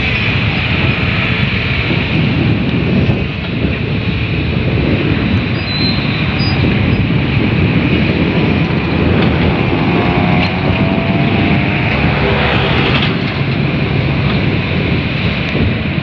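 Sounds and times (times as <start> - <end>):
excavator diesel engines rumbling: 5.0 - 16.0.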